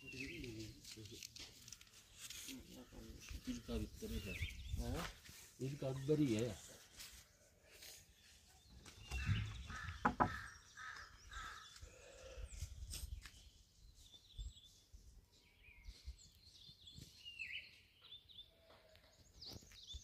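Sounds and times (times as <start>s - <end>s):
birds chirping faintly: 0.0s - 20.0s
knocks on microphone: 9.2s - 10.4s.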